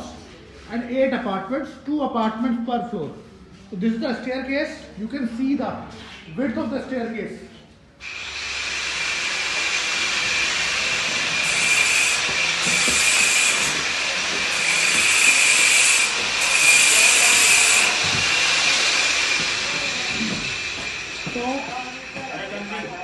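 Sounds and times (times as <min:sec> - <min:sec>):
loud steady hissing: 0:08.0 - 0:23.0.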